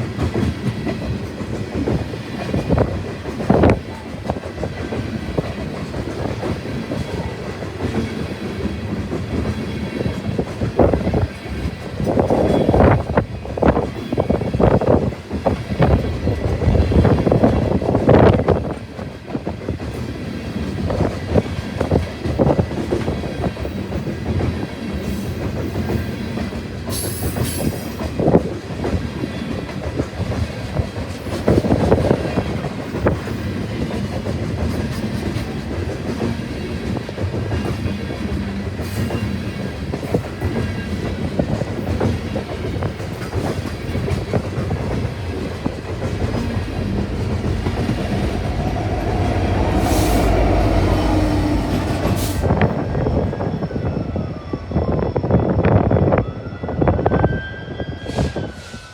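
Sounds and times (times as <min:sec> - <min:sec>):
train wheels clicking over rail joints: 0:00.0 - 0:53.4
train rumble: 0:00.0 - 0:57.4
brief high screech: 0:57.4 - 0:58.9.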